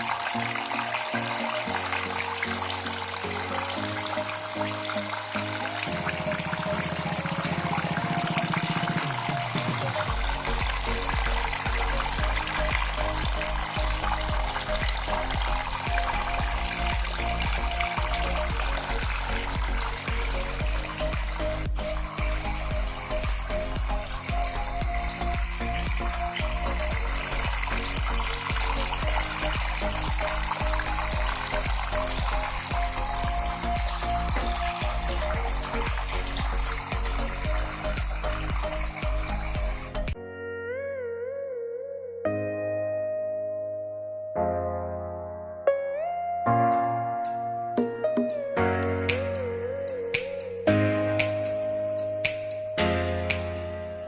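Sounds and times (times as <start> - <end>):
fountain water trickling: 0.0 - 40.2
background music: 0.0 - 54.0.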